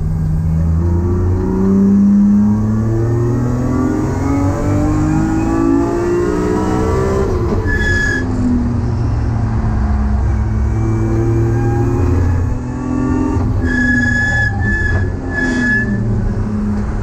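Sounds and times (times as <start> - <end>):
car engine revving under full throttle: 0.0 - 8.8, 9.4 - 17.0.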